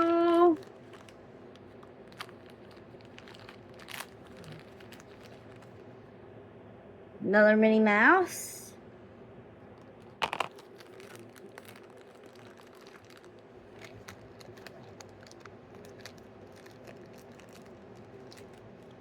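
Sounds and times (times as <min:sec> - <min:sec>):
plastic bag crinkling: 0:00.0 - 0:05.9, 0:09.9 - 0:19.0
plastic crackle: 0:00.0 - 0:05.9, 0:09.8 - 0:19.0.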